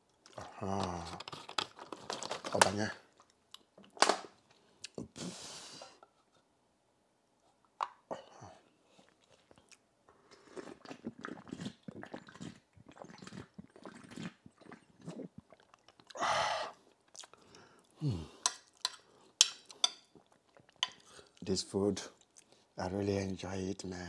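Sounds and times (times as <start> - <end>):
person chewing food: 8.8 - 21.5
wet mouth noises: 9.0 - 19.0
breathy sound: 17.4 - 19.3.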